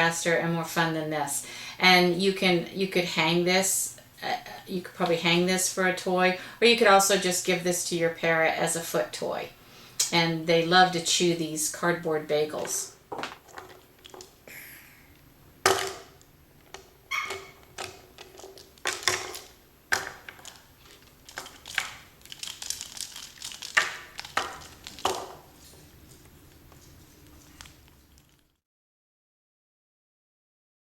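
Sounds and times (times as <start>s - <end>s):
parrot crunching cardboard: 16.6s - 28.6s.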